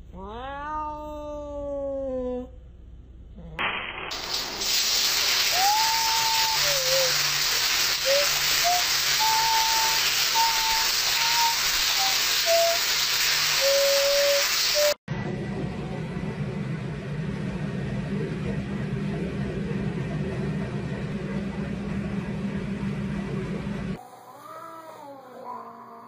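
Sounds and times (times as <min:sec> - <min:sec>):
shower spray hissing: 0:04.0 - 0:15.0
thin whistle-like tones: 0:05.5 - 0:07.2, 0:08.0 - 0:15.0
low hum: 0:15.1 - 0:24.2.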